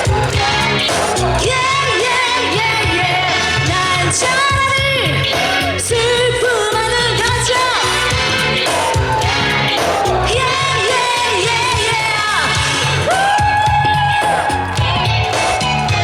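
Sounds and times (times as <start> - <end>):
live band playing pop song: 0.0 - 16.0
woman singing lead: 0.0 - 16.0.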